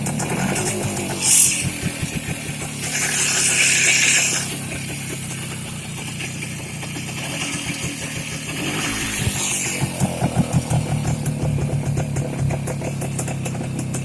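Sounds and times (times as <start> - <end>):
two-stroke motorcycle engine running: 0.0 - 14.0.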